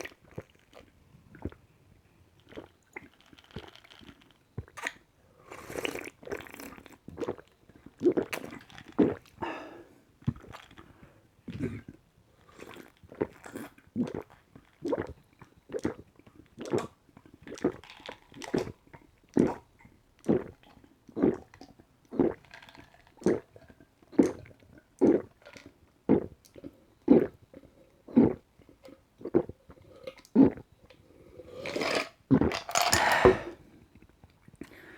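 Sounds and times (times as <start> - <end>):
person gulping a drink: 0.0 - 1.6, 2.4 - 34.8
breathy exhale: 32.9 - 33.7.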